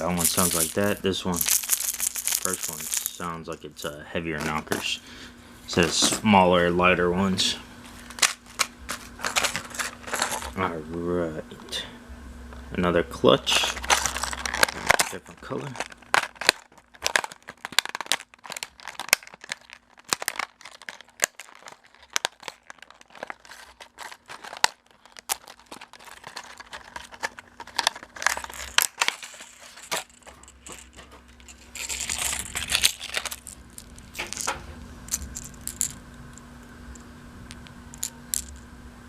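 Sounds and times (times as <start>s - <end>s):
plastic packaging crinkling and tearing: 0.0s - 3.3s, 8.0s - 10.6s, 13.5s - 35.8s.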